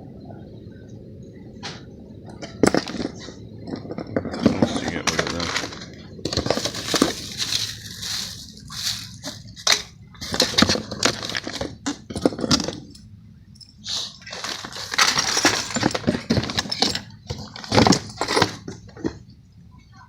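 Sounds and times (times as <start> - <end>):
plastic and cardboard crinkling: 4.3 - 11.8, 14.2 - 16.7.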